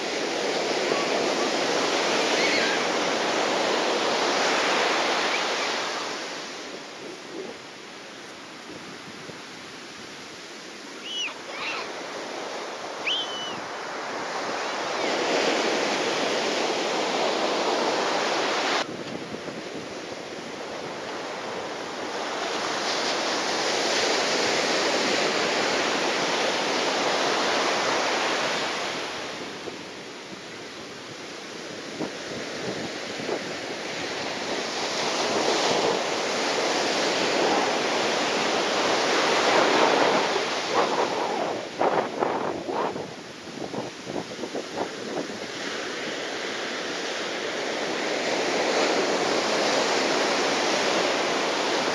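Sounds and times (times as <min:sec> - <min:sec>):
wind buffeting microphone: 0:31.6 - 0:45.9.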